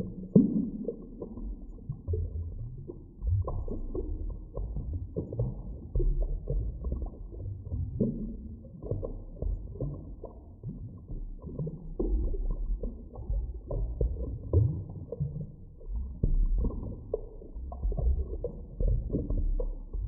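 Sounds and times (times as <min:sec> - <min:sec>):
muffled underwater rumble: 0:00.0 - 0:20.0
underwater clicks and pops: 0:08.8 - 0:20.0.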